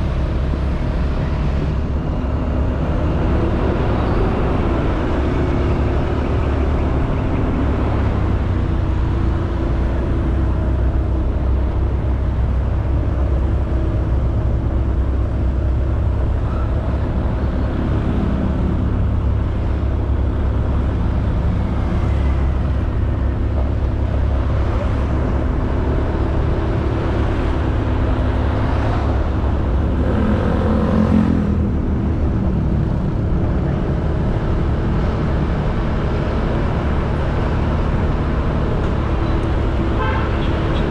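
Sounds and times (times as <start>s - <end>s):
wind and road noise: 0.0s - 40.9s.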